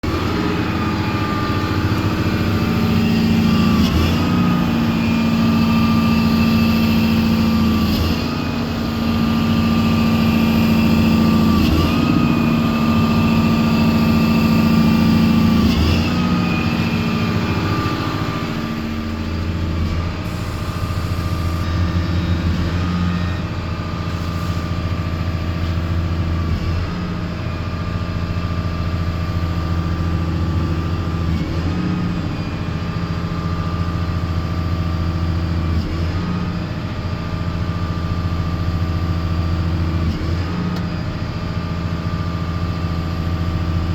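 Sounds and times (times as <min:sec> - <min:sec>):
steady high whine: 0:00.0 - 0:26.4
diesel engine running: 0:00.0 - 0:43.9.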